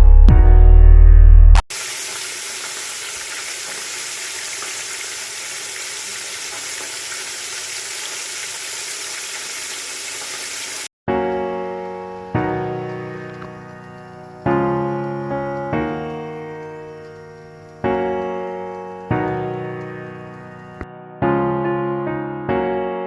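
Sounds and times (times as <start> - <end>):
chicken deep-frying in oil: 1.7 - 10.9, 12.4 - 20.8.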